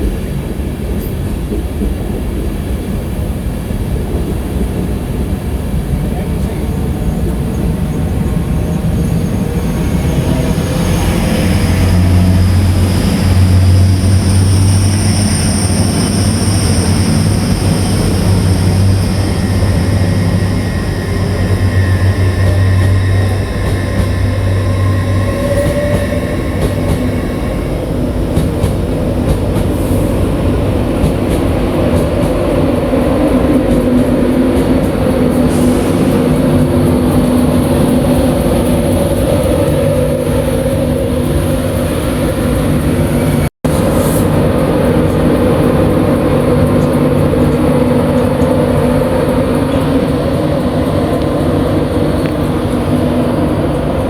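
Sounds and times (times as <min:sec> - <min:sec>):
train low hum: 0:00.0 - 0:54.0
train rumbling: 0:00.0 - 0:54.0
high-pitched whines: 0:07.6 - 0:28.4.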